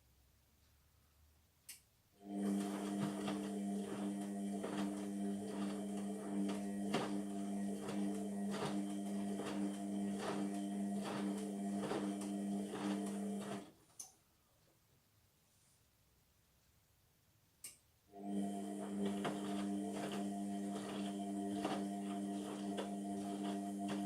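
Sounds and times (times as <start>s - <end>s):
washing machine motor hum: 2.2s - 13.8s, 18.1s - 24.0s.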